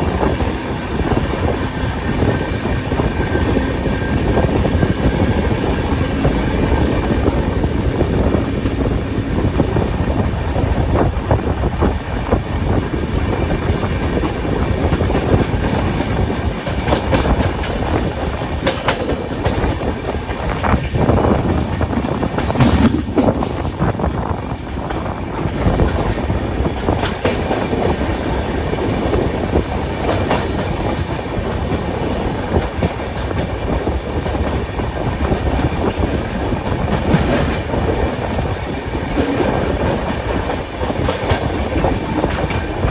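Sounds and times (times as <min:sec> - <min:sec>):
train rumble: 0:00.0 - 0:42.9
wheels clicking over rail joints: 0:13.2 - 0:27.9.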